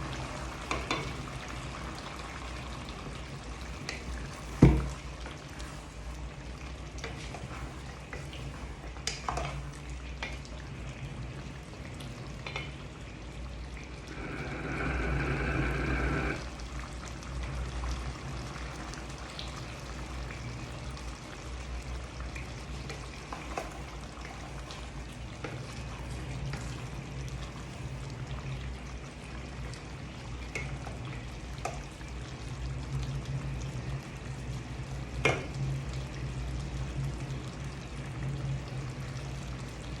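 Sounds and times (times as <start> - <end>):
curry frying and bubbling: 0.0 - 40.0
louder liquid sound: 13.8 - 16.8
low hum: 14.0 - 16.6.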